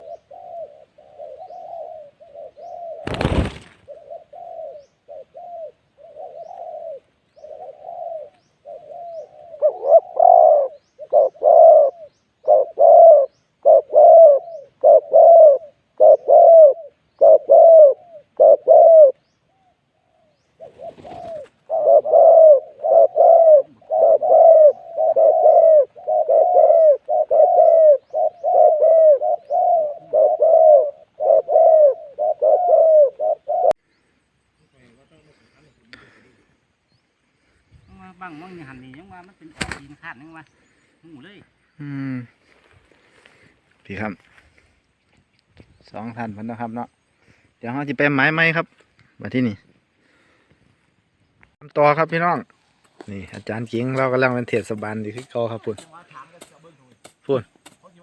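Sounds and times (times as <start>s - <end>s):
dove cooing: 0.0s - 33.8s.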